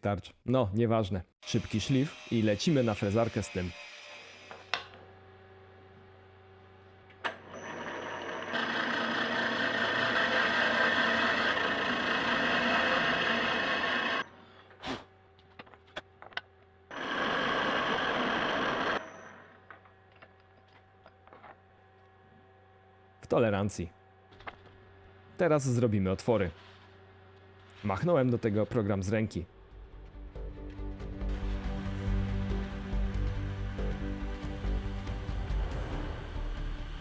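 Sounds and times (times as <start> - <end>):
power tool on steel: 1.4 - 5.6, 7.2 - 14.4, 16.9 - 19.8.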